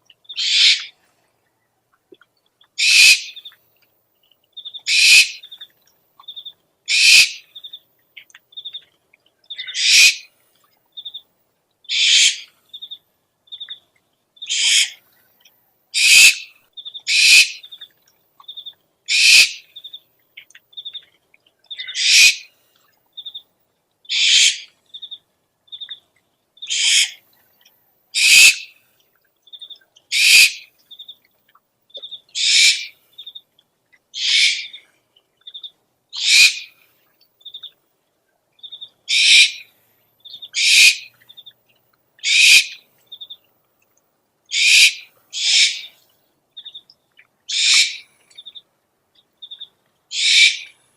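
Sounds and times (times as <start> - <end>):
owl screeching: 0.4 - 0.9, 2.8 - 3.3, 4.9 - 5.4, 6.9 - 7.4, 9.6 - 10.3, 11.9 - 12.5, 14.5 - 15.0, 16.0 - 16.5, 17.1 - 17.6, 19.1 - 19.6, 21.8 - 22.5, 24.1 - 24.7, 26.7 - 27.2, 28.2 - 28.7, 30.1 - 30.6, 32.4 - 32.9, 34.2 - 34.8, 36.2 - 36.7, 39.1 - 39.6, 40.6 - 41.1, 42.2 - 42.8, 44.5 - 45.9, 47.5 - 48.0, 50.1 - 50.7.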